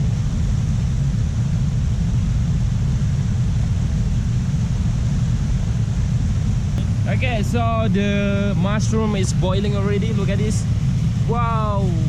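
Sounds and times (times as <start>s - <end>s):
low rumble: 0.0s - 12.0s
wind buffeting microphone: 0.0s - 12.0s.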